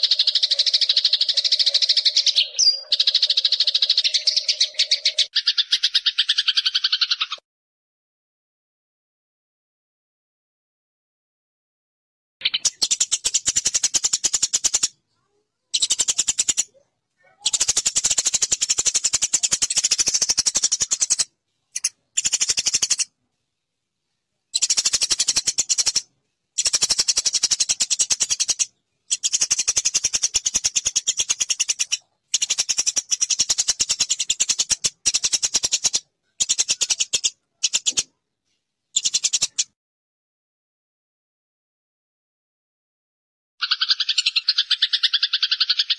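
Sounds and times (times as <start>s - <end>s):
sparrows chirping: 0.0s - 7.4s, 12.4s - 23.1s, 24.5s - 39.8s, 43.6s - 45.9s.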